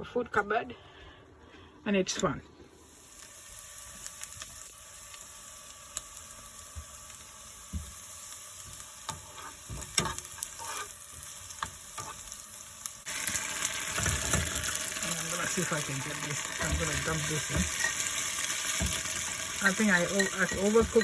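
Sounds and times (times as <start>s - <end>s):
food sizzling in frying pan: 2.7s - 21.0s
utensil scraping pan: 9.1s - 12.2s, 16.1s - 21.0s.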